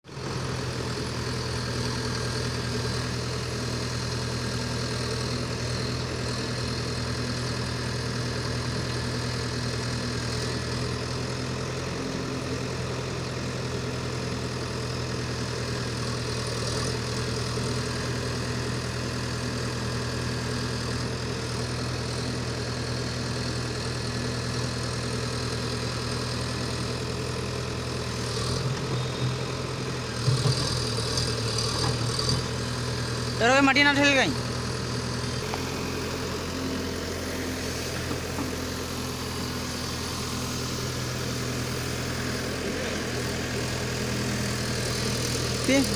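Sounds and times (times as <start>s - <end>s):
excavator diesel engine running: 0.1s - 45.9s.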